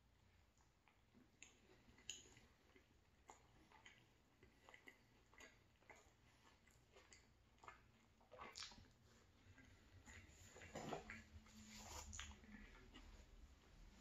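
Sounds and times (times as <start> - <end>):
mouth clicks of person chewing: 0.8 - 9.0.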